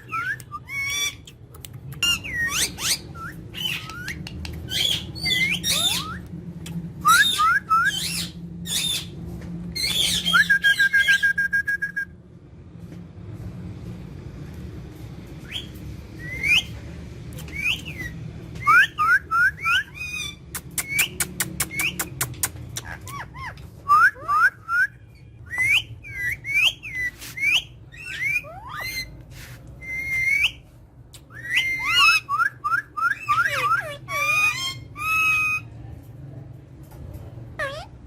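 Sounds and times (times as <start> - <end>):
parrots chirping: 0.0 - 11.4, 15.4 - 30.6, 31.2 - 35.7, 37.6 - 38.0
sharp clicks: 20.6 - 22.9.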